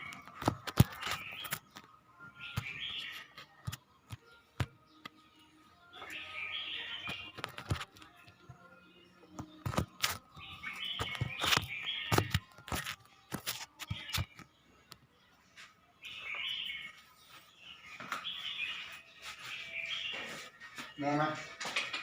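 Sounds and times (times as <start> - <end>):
bird singing chirpy phrases: 0.0 - 21.5
sharp clicks and taps: 9.3 - 15.0.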